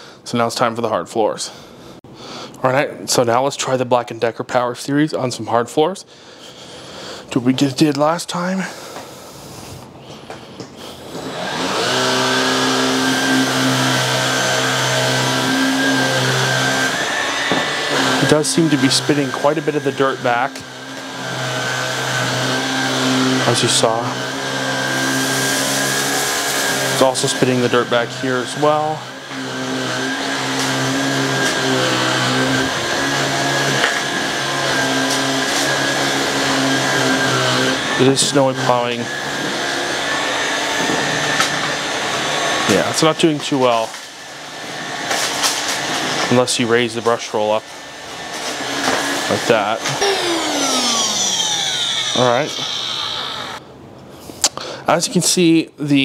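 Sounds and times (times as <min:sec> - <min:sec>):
stick vacuum motor humming: 0:11.1 - 0:42.9, 0:47.0 - 0:53.7.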